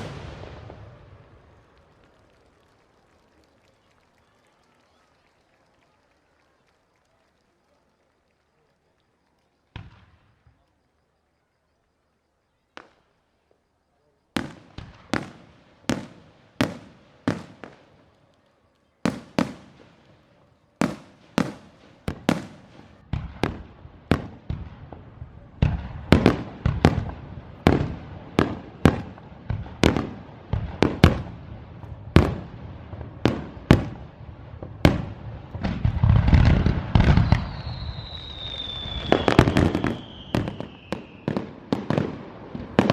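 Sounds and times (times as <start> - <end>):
fireworks shells bursting: 0.0 - 4.4, 14.4 - 32.5, 33.1 - 42.9
fireworks crackle: 0.0 - 42.9.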